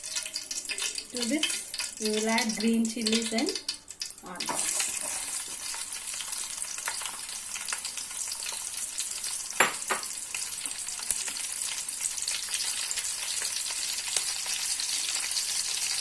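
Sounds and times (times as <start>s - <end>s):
food sizzling in oil: 0.0s - 16.0s
stirring in a pan: 0.0s - 16.0s
knocks against pan: 9.6s - 10.1s.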